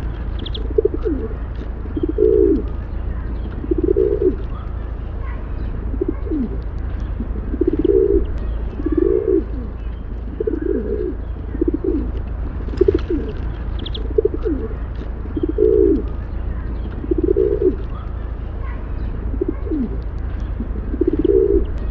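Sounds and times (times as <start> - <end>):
pigeons cooing: 0.0 - 21.9
steady low hum: 0.0 - 21.9.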